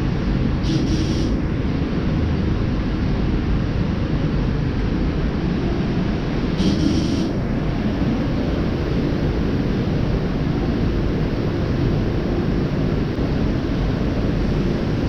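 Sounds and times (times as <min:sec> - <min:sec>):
low machinery drone: 0:00.0 - 0:15.0
air hiss: 0:00.6 - 0:01.4, 0:06.6 - 0:07.4.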